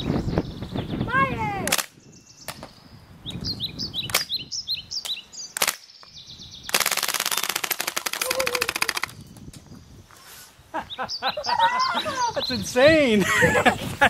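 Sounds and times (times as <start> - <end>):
sharp clicks: 1.7 - 2.7, 4.1 - 4.4, 5.0 - 9.6
bb gun firing rapid burst: 6.7 - 9.2.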